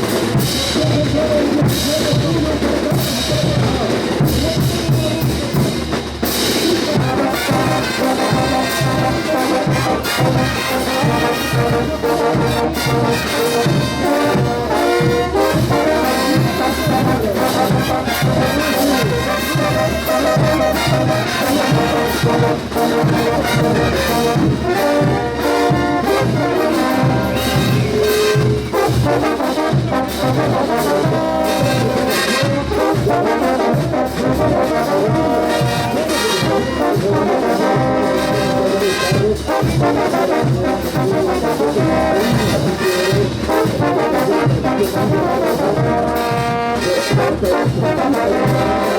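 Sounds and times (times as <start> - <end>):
steady drum beat: 0.0 - 48.9
trumpets and trombones melody: 0.0 - 48.9.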